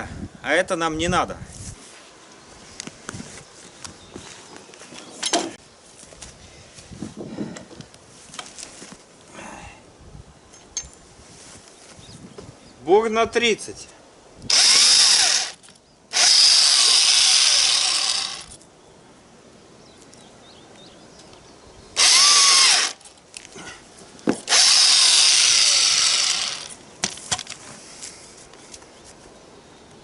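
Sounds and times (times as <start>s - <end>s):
electric drill boring wood: 14.5s - 18.5s, 22.0s - 23.0s, 24.5s - 26.8s.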